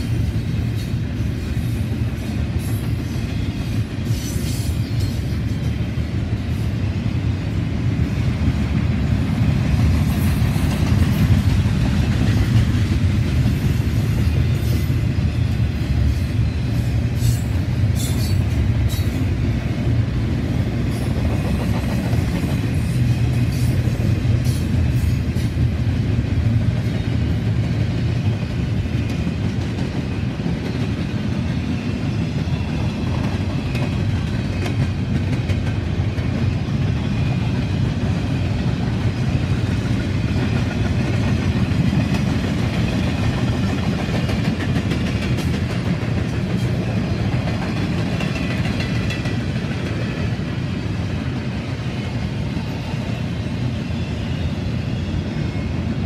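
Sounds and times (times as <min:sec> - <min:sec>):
steel wheels rumbling on rail: 0:00.0 - 0:56.0.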